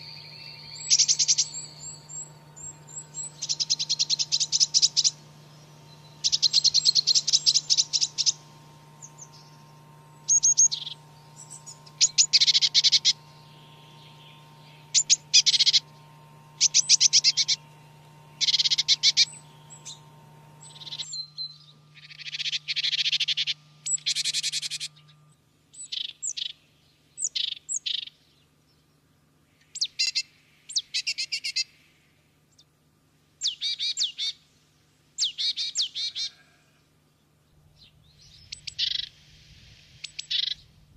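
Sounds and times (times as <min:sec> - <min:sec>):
canary singing trills: 0:00.0 - 0:28.4, 0:29.5 - 0:31.8, 0:33.4 - 0:34.4, 0:35.2 - 0:36.6, 0:37.7 - 0:40.8.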